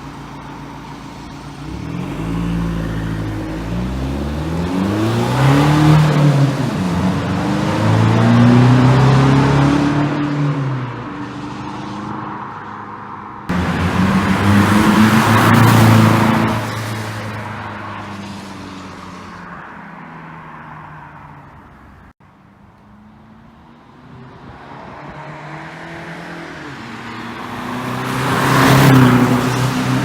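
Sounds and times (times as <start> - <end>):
car exhaust accelerating hard: 13.5 - 17.4.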